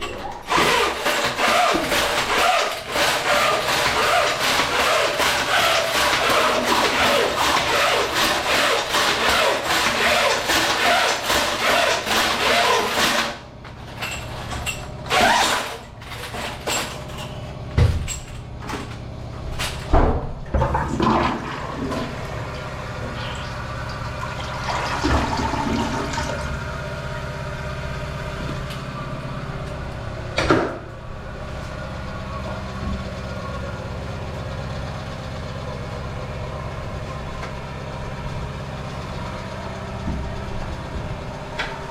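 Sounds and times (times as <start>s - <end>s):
drain auger scraping: 0.0s - 17.6s
toilet flush: 20.5s - 26.7s.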